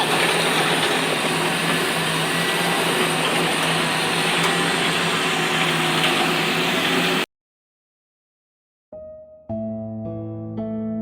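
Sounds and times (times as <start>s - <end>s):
vehicle engine humming: 0.0s - 7.2s.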